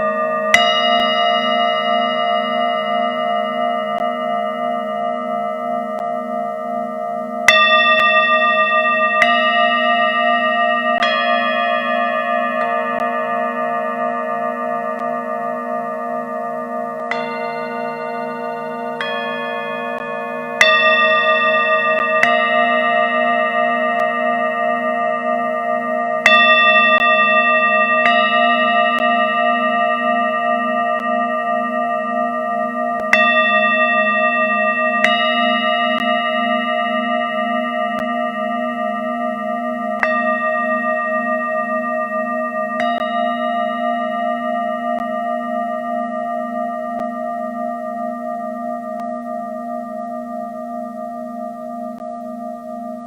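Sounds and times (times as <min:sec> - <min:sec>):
bowl struck: 0:00.0 - 0:53.0
singing bowls ringing: 0:00.0 - 0:53.0.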